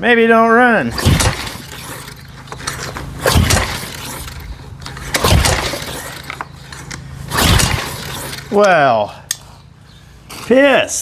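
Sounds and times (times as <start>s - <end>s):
engine pull-start cranking: 0.9s - 8.8s.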